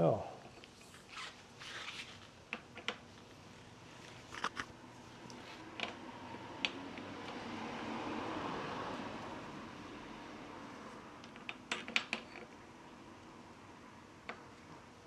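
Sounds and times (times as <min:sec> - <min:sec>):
rustling: 0:00.6 - 0:02.3.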